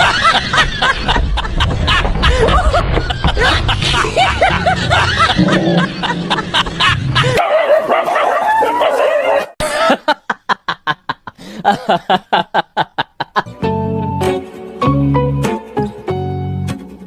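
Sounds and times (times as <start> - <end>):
music track: 13.5 - 17.0.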